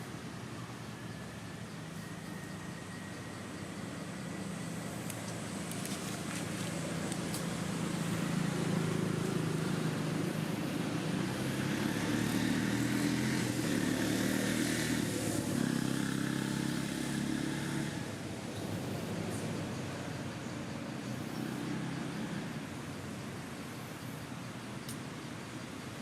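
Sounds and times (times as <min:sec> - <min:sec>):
vehicle engine running: 0:00.0 - 0:24.8.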